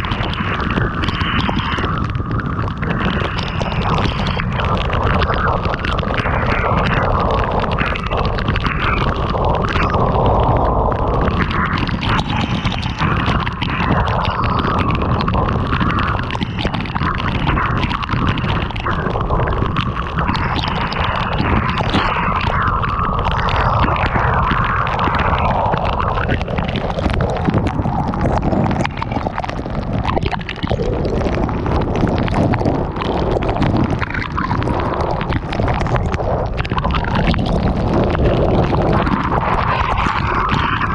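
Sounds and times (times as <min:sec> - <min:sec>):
heavy rain pelting a car: 0:00.0 - 0:40.9
wind buffeting microphone: 0:00.0 - 0:40.9.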